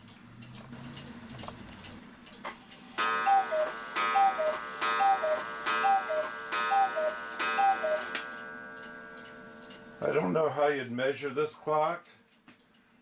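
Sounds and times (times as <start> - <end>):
gong strike ringing: 3.0 - 10.1
cuckoo clock call: 3.0 - 10.3.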